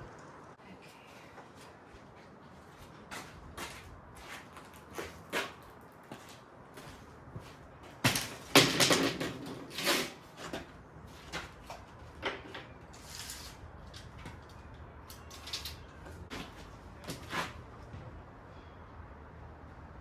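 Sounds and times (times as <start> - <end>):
wooden knocks and clatters: 8.0 - 12.8.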